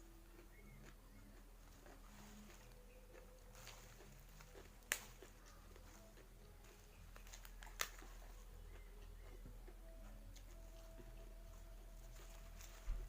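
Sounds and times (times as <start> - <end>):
faint chewing: 0.0 - 13.0.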